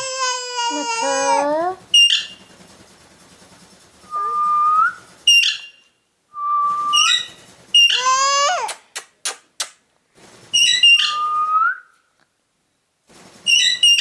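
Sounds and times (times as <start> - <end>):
parakeet whistles: 4.1 - 5.7, 6.4 - 8.1, 10.6 - 11.9
parakeet shrill calls: 6.8 - 8.4, 10.6 - 11.4.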